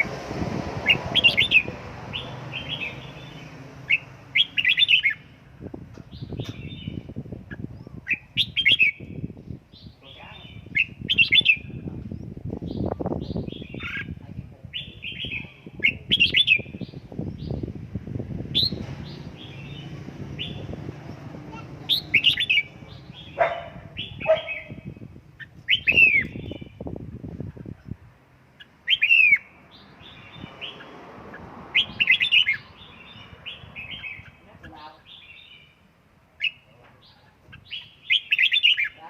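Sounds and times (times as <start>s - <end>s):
bird chirping: 0.8s - 17.8s, 18.5s - 39.0s
low rumbling noise: 10.6s - 28.2s.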